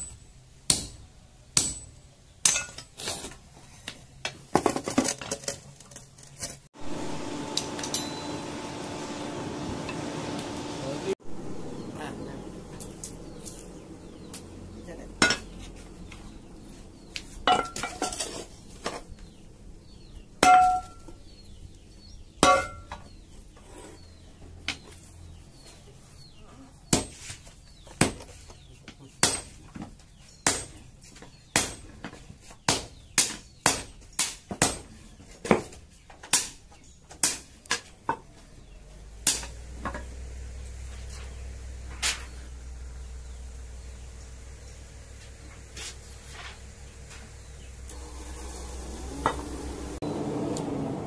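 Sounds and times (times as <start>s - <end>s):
hammer striking steel blade: 7.5s - 8.3s.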